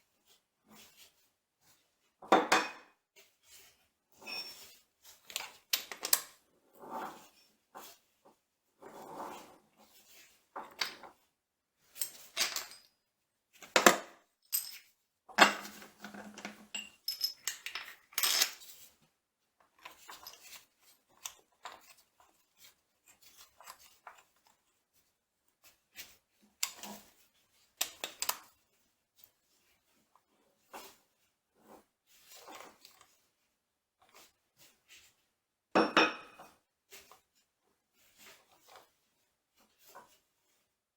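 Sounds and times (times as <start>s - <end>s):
metal tools clinking: 14.5s - 18.6s.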